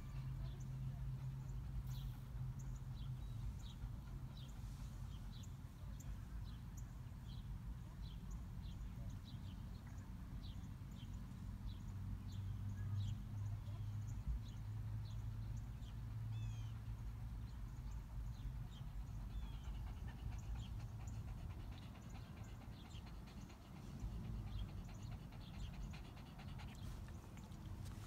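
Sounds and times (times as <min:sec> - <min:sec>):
dog panting: 0:00.1 - 0:05.7, 0:14.2 - 0:28.0.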